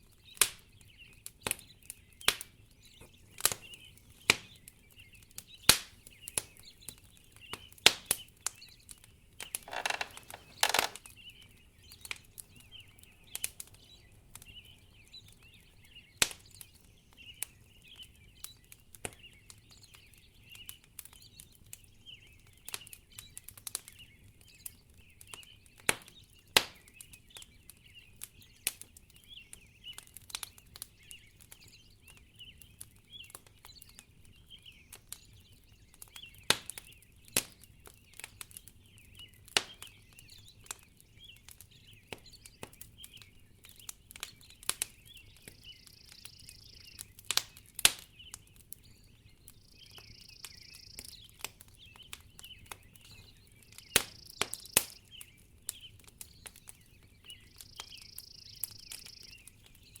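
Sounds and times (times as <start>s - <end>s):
wood fire crackling: 0.0s - 60.0s
sharp pops: 9.6s - 11.0s.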